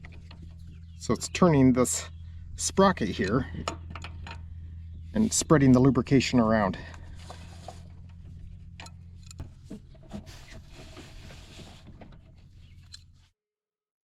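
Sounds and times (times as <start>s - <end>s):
steady low hum: 0.0s - 13.3s
drive shaft clicking and ticking: 7.9s - 10.0s.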